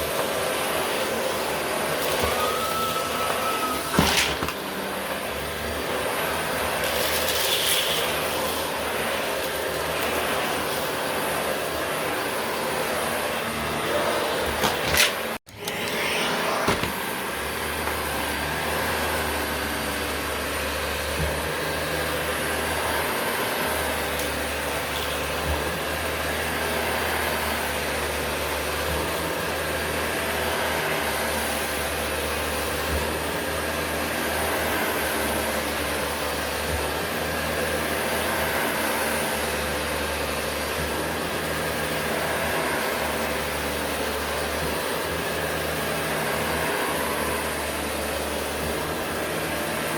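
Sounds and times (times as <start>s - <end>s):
vacuum cleaner running: 0.0s - 49.9s.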